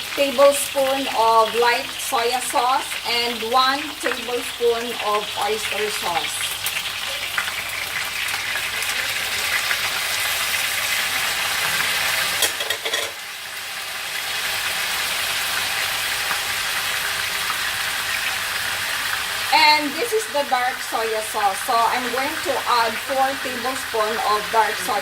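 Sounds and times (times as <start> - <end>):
chicken sizzling in oil: 0.0 - 25.0.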